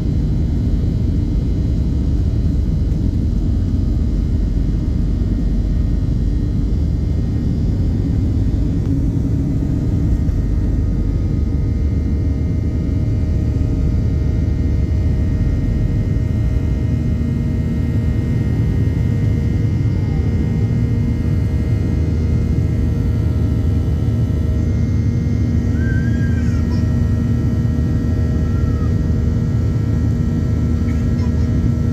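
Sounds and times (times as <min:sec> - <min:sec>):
airplane cabin rumble: 0:00.0 - 0:31.9
faint steady hums: 0:00.0 - 0:31.9.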